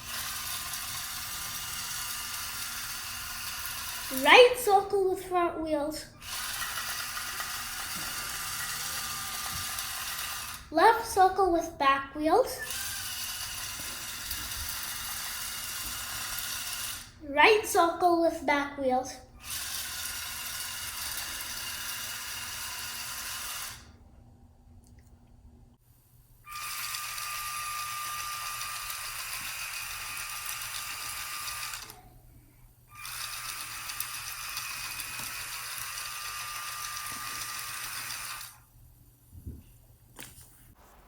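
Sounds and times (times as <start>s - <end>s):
toy truck motors whirring: 0.0s - 11.6s, 12.4s - 18.4s, 19.4s - 23.9s, 26.5s - 32.1s, 32.9s - 38.6s.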